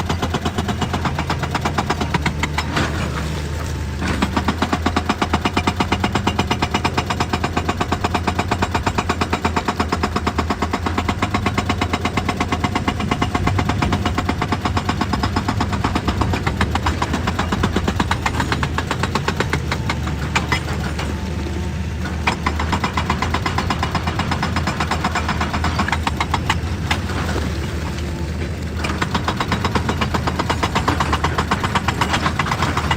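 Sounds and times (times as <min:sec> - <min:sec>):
hydraulic breaker hammering rock: 0:00.0 - 0:03.4, 0:04.0 - 0:21.3, 0:22.0 - 0:27.4, 0:28.8 - 0:32.9
diesel engine drone: 0:00.0 - 0:32.9.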